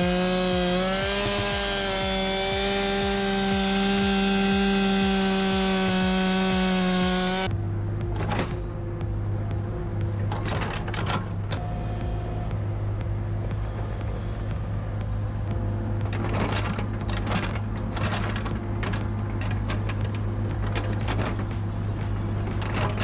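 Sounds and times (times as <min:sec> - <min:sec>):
wood being worked by machine: 0:00.0 - 0:08.7, 0:15.8 - 0:23.0
diesel engine running: 0:00.0 - 0:23.0.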